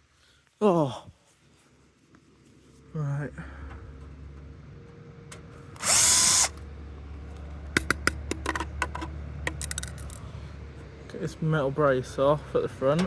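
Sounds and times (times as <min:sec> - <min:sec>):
parts clicking and knocking: 0:03.6 - 0:06.6, 0:07.3 - 0:10.5
power drill whining: 0:05.7 - 0:06.6.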